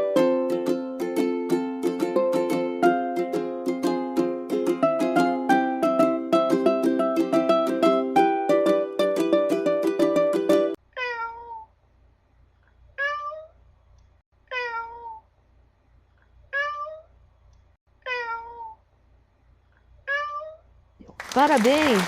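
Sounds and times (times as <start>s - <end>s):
ukulele music: 0.0s - 10.8s
cat meowing: 10.9s - 11.7s, 13.0s - 13.6s, 14.5s - 15.2s, 16.5s - 17.1s, 18.0s - 18.8s, 20.1s - 20.6s.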